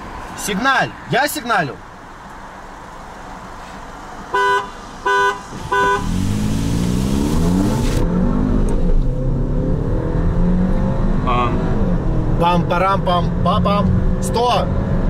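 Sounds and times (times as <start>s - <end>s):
car horn honks: 4.3s - 6.3s
car engine accelerating: 4.6s - 15.0s.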